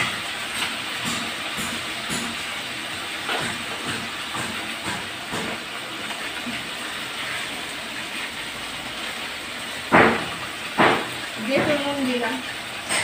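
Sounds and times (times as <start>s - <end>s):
potatoes sizzling in oil: 0.0s - 13.0s.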